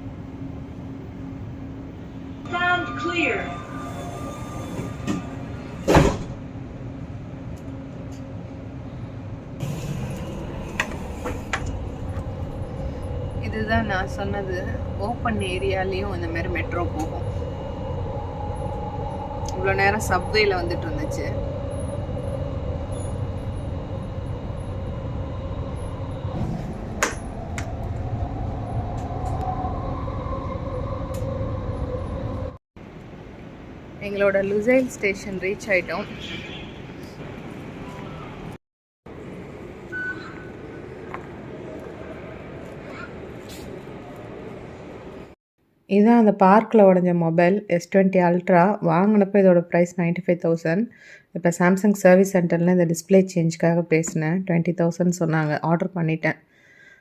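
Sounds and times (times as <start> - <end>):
train carriage hum: 0.0 - 45.4
train running noise: 0.0 - 45.4
train sliding doors closing: 3.7 - 6.5, 9.6 - 13.4, 21.4 - 29.6.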